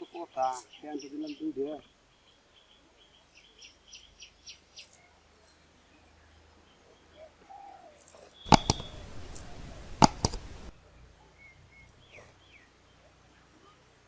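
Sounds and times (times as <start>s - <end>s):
faint bird calls: 0.0s - 14.0s
sharp clicks: 8.1s - 10.8s
loud hiss: 8.5s - 10.8s.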